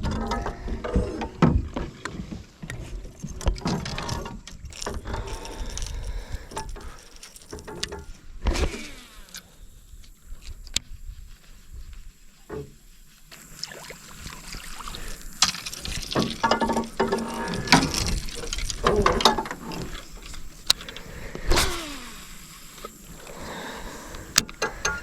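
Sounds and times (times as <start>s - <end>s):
fishing reel whirring and clicking: 13.4s - 25.0s.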